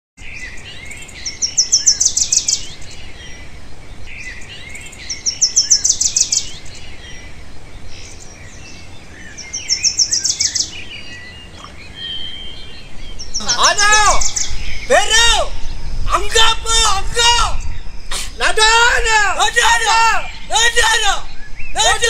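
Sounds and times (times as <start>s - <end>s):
soft bird chirping: 0.2s - 22.0s
bird singing rapid high notes: 9.0s - 22.0s.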